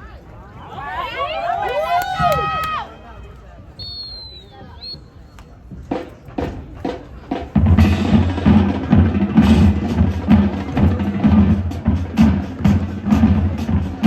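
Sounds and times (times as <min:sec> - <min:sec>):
marching band playing: 0:05.9 - 0:14.0
bass drum beat: 0:06.4 - 0:14.0.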